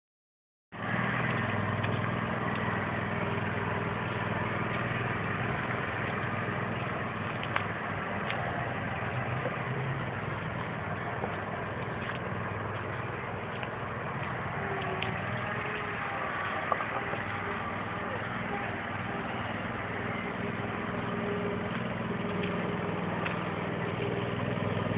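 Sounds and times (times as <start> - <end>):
lawn mower motor running: 0.8 - 24.9.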